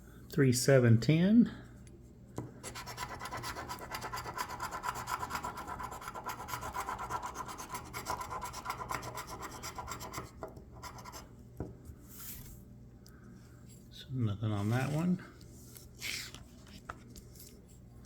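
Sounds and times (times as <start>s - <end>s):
coin scratching lottery ticket: 2.6s - 11.3s.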